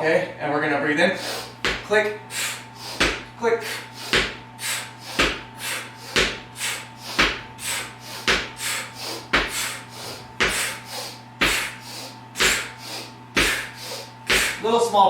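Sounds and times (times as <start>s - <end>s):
faint steady hum: 0.0s - 15.0s
short sharp breaths: 1.1s - 1.6s, 2.3s - 14.7s
medicine ball knocking on floor: 1.6s - 1.9s, 3.0s - 3.3s, 4.1s - 4.4s, 5.2s - 5.5s, 6.1s - 6.5s, 7.2s - 7.5s, 8.2s - 8.6s, 9.3s - 9.6s.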